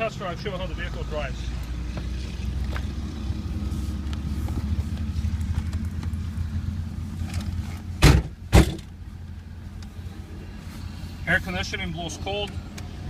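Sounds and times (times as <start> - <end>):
car engine idling: 0.0 - 13.0
loud thump: 8.0 - 8.9.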